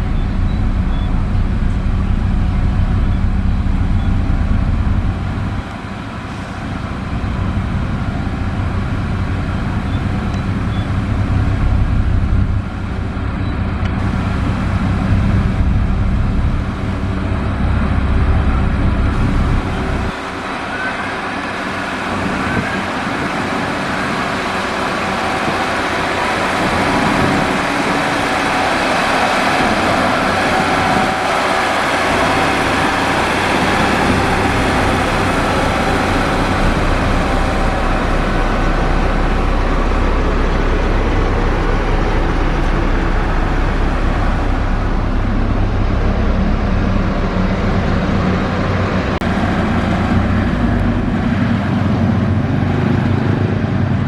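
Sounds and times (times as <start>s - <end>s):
construction machinery noise: 0.0s - 54.0s
diesel engine hum: 0.0s - 54.0s.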